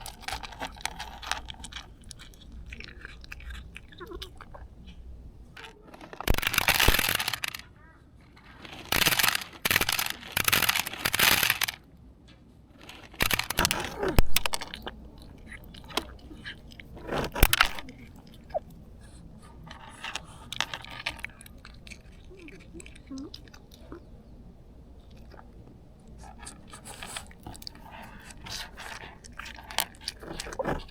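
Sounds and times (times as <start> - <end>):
cat gulping: 0.0 - 5.9, 13.5 - 30.9
cat crunching dry food: 0.0 - 7.7, 8.3 - 11.8, 12.8 - 30.9.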